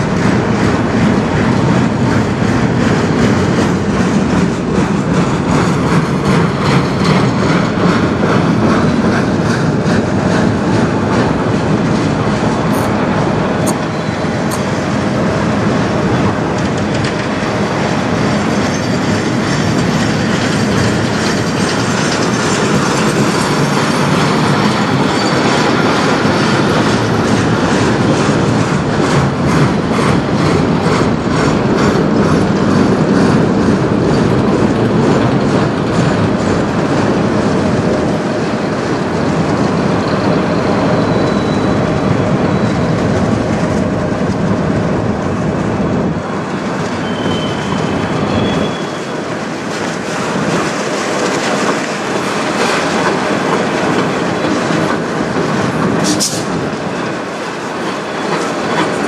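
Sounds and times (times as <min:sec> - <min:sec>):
rhythmic clickety-clack: 0:00.0 - 0:59.0
train wheels rumbling on rails: 0:00.0 - 0:59.0
faint high wheel squeals: 0:40.0 - 0:43.0, 0:47.0 - 0:49.3.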